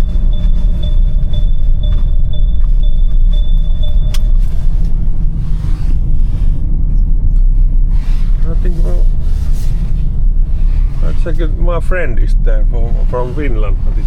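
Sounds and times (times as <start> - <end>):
seat belt warning chime: 0.0 - 5.3
truck engine rumble: 0.0 - 14.0
seat belt buckle click: 4.0 - 5.0.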